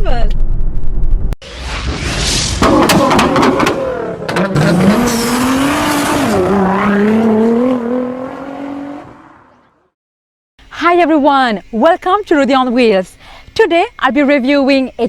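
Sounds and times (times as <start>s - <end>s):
car engine at high revs: 2.6s - 9.7s.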